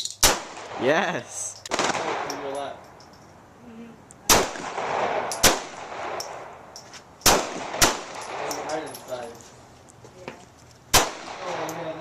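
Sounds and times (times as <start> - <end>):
gunshots: 1.7 - 2.5, 4.3 - 6.2, 7.2 - 8.6, 10.9 - 11.9.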